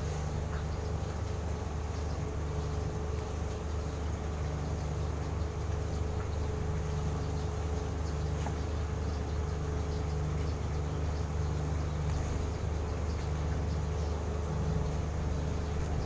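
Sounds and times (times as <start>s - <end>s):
steady low hum: 0.0s - 16.0s
cage birds chirping: 7.2s - 16.0s.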